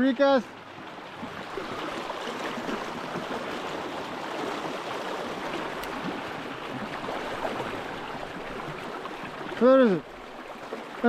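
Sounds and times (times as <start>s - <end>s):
sea current rushing: 0.0s - 11.0s.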